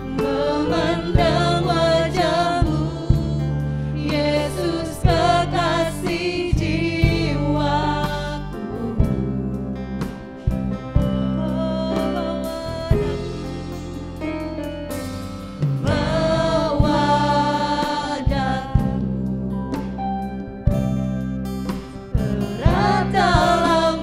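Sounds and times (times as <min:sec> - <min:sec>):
group singing: 0:00.0 - 0:10.6, 0:15.8 - 0:20.0, 0:22.2 - 0:24.0
bass: 0:00.0 - 0:24.0
worship band playing: 0:00.0 - 0:24.0.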